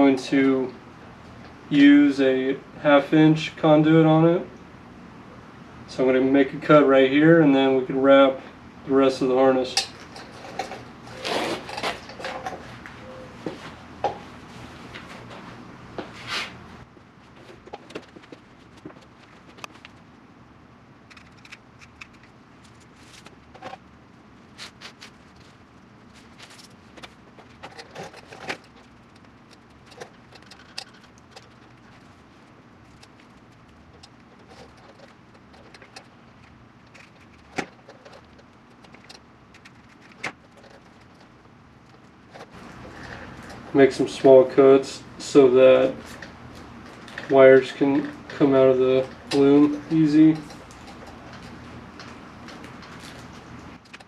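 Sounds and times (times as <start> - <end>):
light rustling of wiring loom: 9.5 - 13.8, 17.2 - 20.2, 21.0 - 54.0
plastic rustle: 22.6 - 23.7.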